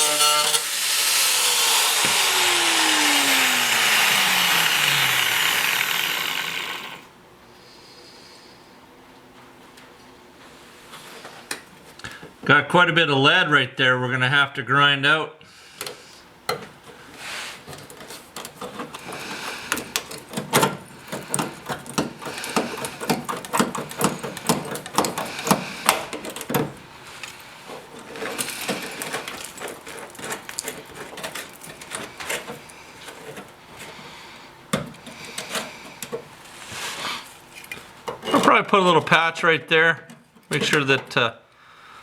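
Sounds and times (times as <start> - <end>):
tool scraping on bare metal: 0.0 - 7.0, 17.0 - 34.0.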